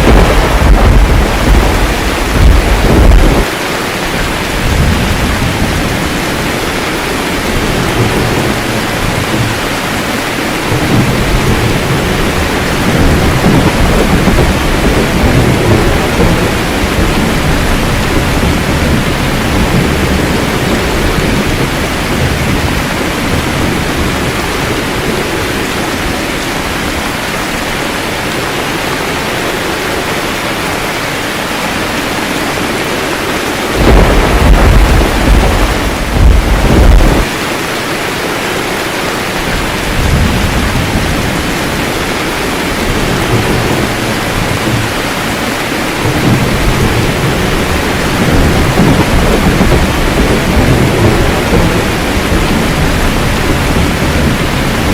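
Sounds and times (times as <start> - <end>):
loud close thunderclap: 0.0 - 3.5, 7.1 - 9.8, 10.5 - 25.5, 33.4 - 37.4, 39.5 - 54.9
steady rain: 0.0 - 54.9
thunder rumbling: 0.0 - 54.9.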